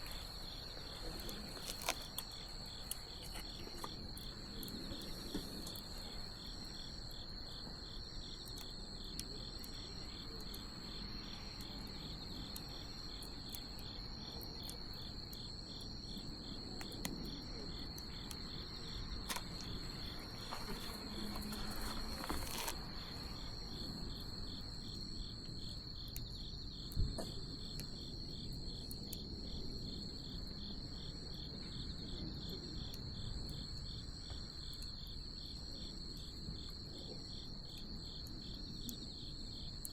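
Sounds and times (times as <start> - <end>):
wood bonfire crackling: 0.0 - 25.8
crickets chirping: 0.0 - 39.9.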